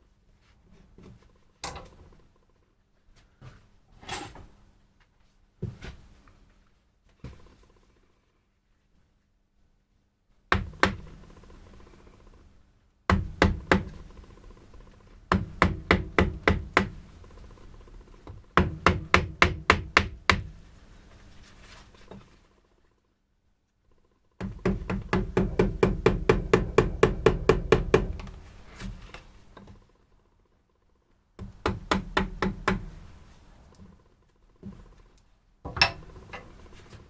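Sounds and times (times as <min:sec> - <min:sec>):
mallet striking chisel into wood: 0:10.5 - 0:11.1, 0:13.1 - 0:14.0, 0:15.3 - 0:17.0, 0:18.3 - 0:20.5, 0:24.4 - 0:28.4, 0:31.4 - 0:32.9, 0:35.7 - 0:36.2.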